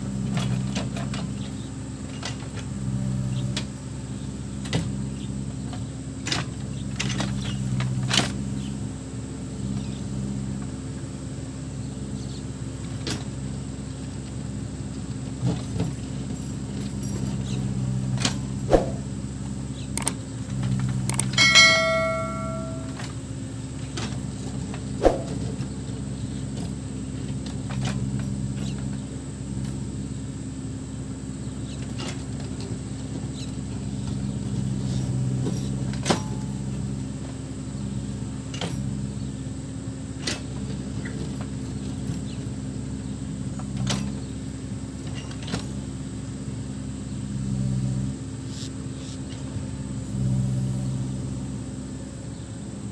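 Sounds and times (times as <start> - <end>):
metallic clanks and knocks: 21.1 - 23.1
high ringing tone: 21.3 - 23.1
diesel engine running: 22.9 - 52.9.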